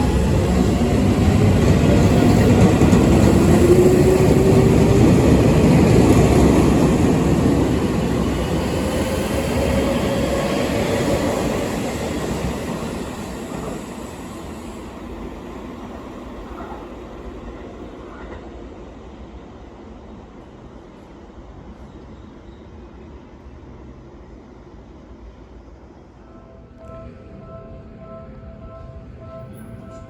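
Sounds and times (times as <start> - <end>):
train wheel rumble: 0.0 - 19.1.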